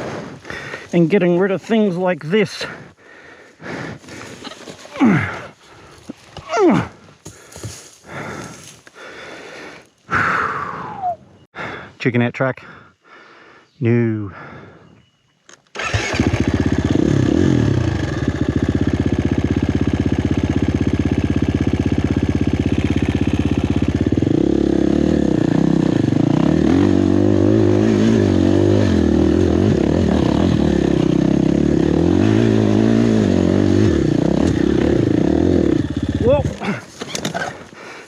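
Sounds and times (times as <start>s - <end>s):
dirt bike engine revving: 15.8s - 37.6s.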